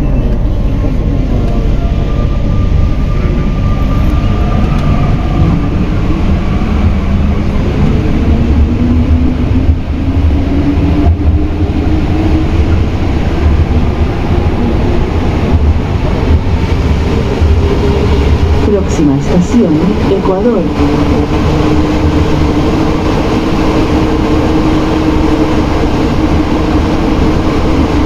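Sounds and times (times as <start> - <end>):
train motor whine: 0.0 - 12.7
metro train rumbling: 0.0 - 28.0.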